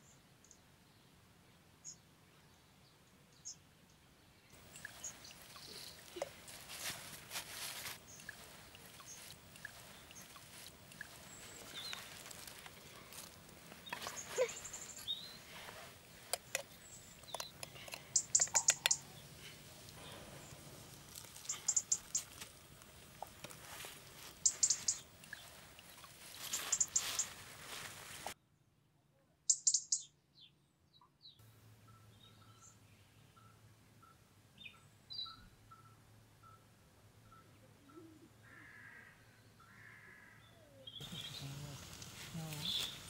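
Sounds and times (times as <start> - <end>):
forest birds chirping: 0.0 - 28.7, 29.5 - 43.0
campfire crackling: 4.6 - 28.4, 41.0 - 43.0.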